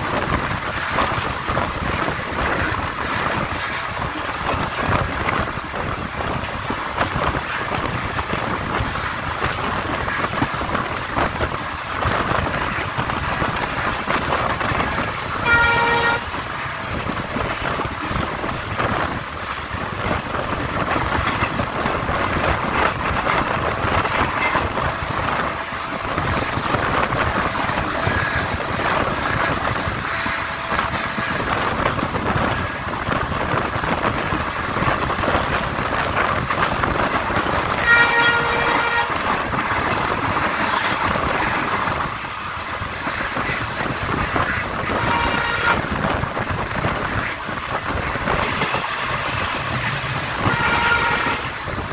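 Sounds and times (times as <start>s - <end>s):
train wheels rushing on rails: 0.0s - 51.9s
wind: 0.0s - 51.9s
train horn: 14.8s - 16.8s, 37.6s - 39.4s, 44.4s - 46.1s, 50.3s - 51.7s.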